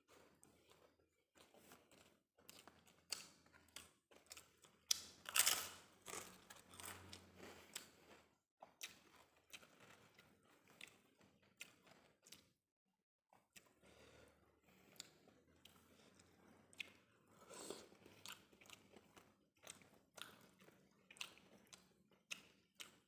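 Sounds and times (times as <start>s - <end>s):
wet chewing and mouth clicks: 0.3s - 12.6s, 13.3s - 13.8s, 14.7s - 23.0s
cracker crunching: 2.6s - 8.2s.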